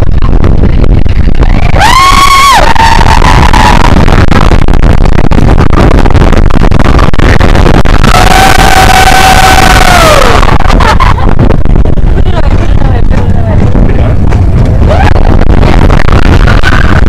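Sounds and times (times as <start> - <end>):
high-pitched wails: 1.6 - 4.2, 8.0 - 10.6.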